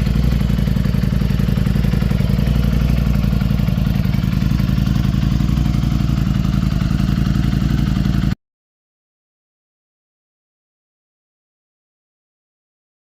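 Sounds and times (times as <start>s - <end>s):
motorcycle engine idling: 0.0s - 8.4s.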